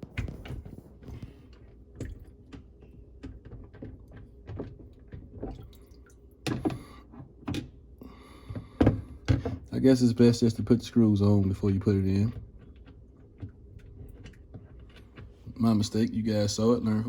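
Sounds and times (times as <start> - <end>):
plastic parts clicking and knocking: 0.0 - 5.6
clattering handling noises: 6.4 - 9.8.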